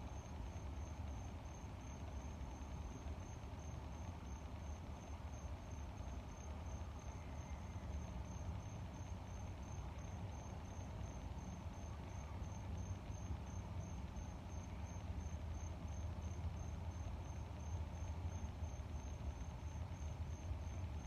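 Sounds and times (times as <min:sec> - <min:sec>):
cricket chirping: 0:00.0 - 0:21.0.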